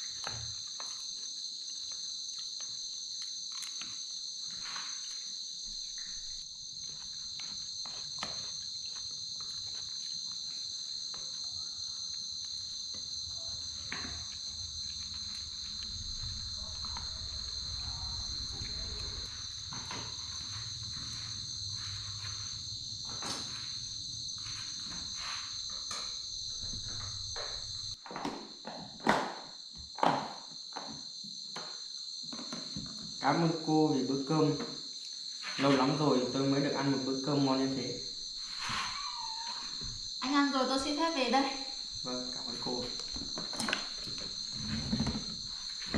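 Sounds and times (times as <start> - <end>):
crickets chirping: 0.0 - 45.9.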